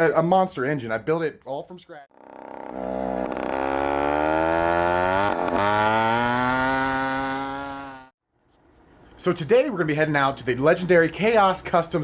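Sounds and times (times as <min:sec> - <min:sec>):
chainsaw engine revving high: 0:02.1 - 0:08.1.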